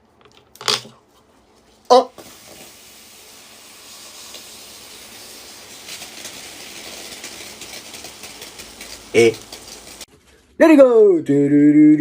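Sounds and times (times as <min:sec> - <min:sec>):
steady hissing: 0:02.2 - 0:10.1.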